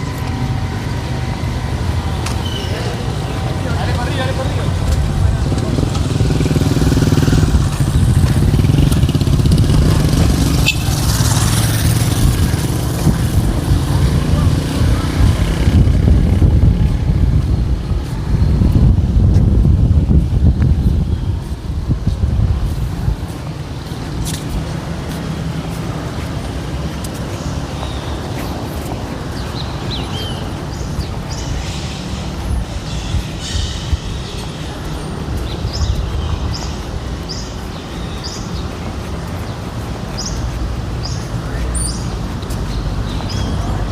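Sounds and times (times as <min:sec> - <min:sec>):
birds chirping: 0:00.0 - 0:16.9, 0:23.0 - 0:43.9
vehicle engines rumbling: 0:00.0 - 0:43.9
high-pitched squeak: 0:02.4 - 0:03.0.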